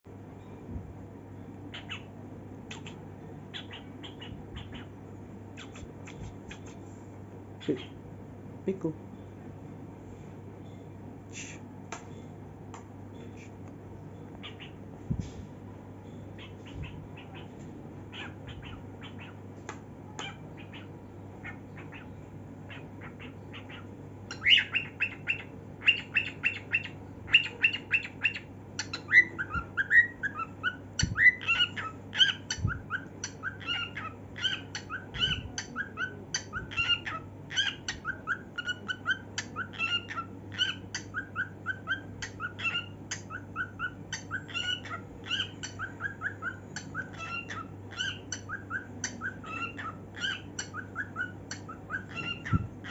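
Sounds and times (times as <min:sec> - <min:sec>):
steady low hum: 0:00.0 - 0:52.9
cockatiel singing: 0:01.7 - 0:06.8, 0:14.2 - 0:14.8, 0:16.1 - 0:19.4, 0:20.2 - 0:52.9.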